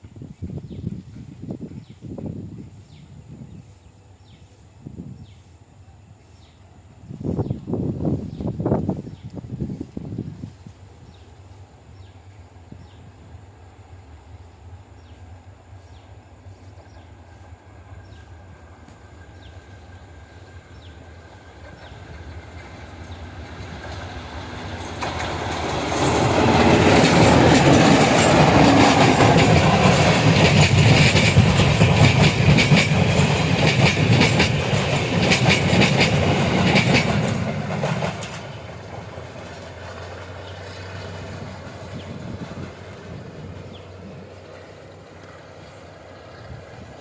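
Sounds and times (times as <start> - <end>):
train rumble passing: 0.0 - 47.0
wheels clattering over rail joints: 21.7 - 42.6.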